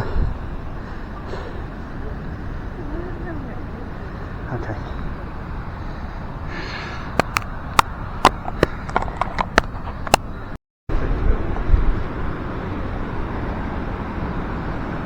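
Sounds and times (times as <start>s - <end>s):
steady rushing noise: 0.0s - 15.0s
sharp irregular taps: 7.2s - 10.2s.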